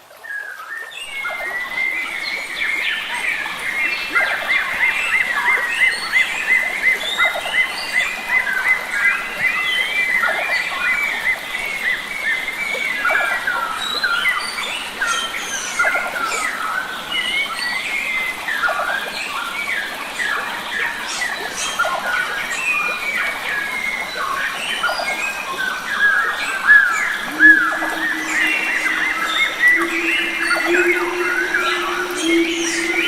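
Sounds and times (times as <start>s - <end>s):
forest birds chirping: 26.5s - 33.0s
steady low tone: 27.2s - 33.0s.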